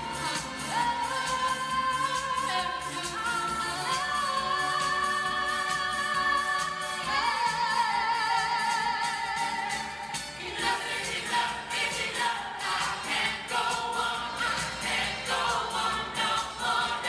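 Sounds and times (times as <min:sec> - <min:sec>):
choir singing pop song: 0:00.0 - 0:17.0
steady drum beat: 0:09.4 - 0:17.0.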